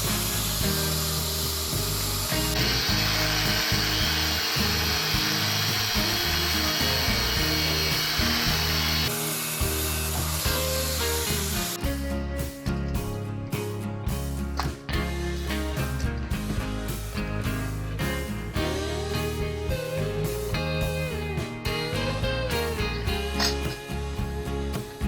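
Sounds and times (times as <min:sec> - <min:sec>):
power tool cutting steel: 0:00.0 - 0:11.8
background music: 0:00.0 - 0:25.0.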